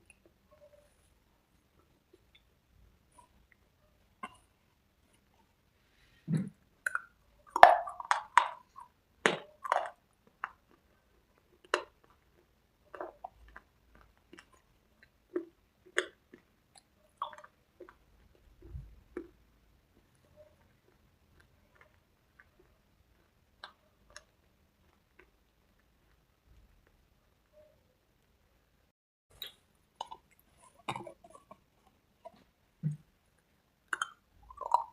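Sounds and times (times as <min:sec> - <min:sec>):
mouth crunching dry cubes: 0:06.2 - 0:18.5, 0:33.8 - 0:34.9.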